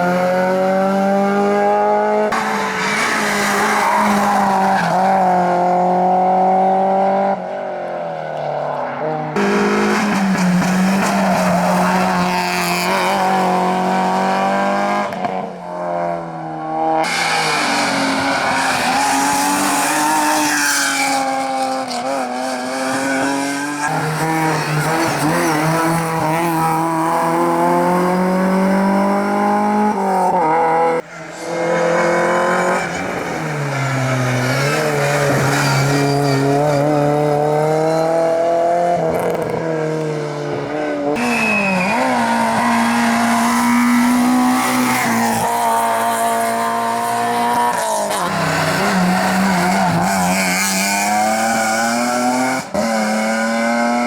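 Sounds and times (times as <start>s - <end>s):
racing car engines revving: 0.0s - 54.0s.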